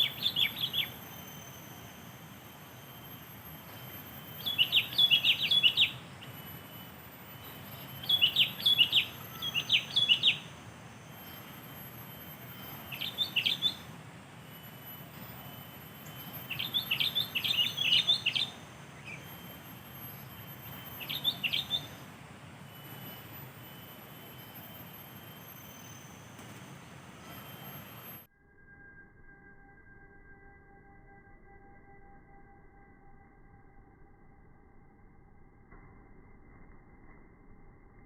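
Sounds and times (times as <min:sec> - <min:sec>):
bird chirping: 0:00.0 - 0:28.2.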